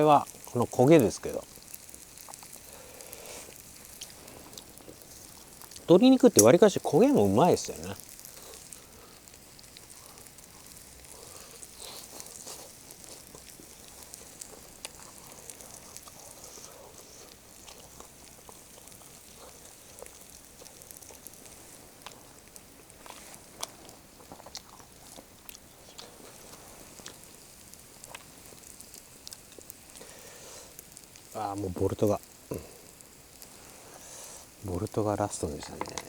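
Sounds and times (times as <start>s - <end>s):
burning log crackles: 0.0s - 36.0s
griddle sizzling: 0.0s - 36.0s
person chewing: 1.5s - 5.9s, 8.0s - 31.2s, 32.4s - 33.5s.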